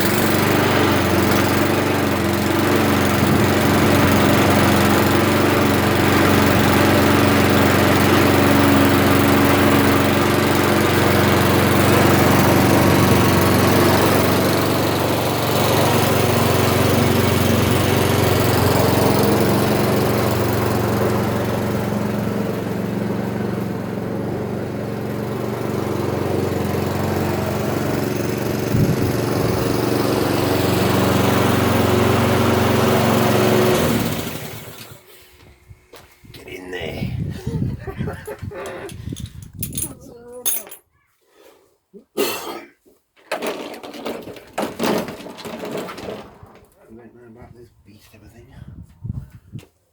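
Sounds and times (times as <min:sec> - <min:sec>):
lawnmower engine running: 0:00.0 - 0:35.1, 0:43.3 - 0:46.8.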